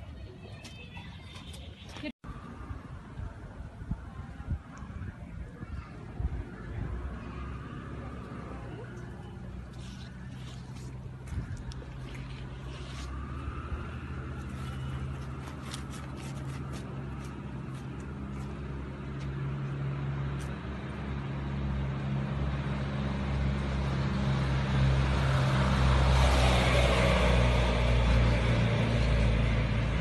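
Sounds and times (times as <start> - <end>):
traffic noise: 0.0 - 30.0
vehicle engine humming: 6.4 - 30.0.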